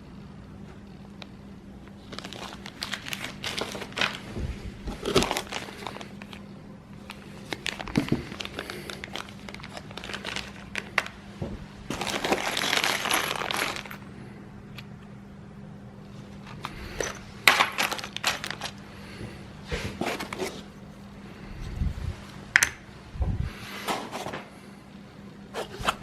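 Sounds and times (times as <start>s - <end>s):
packaging crinkling: 1.2s - 14.1s, 16.2s - 18.9s.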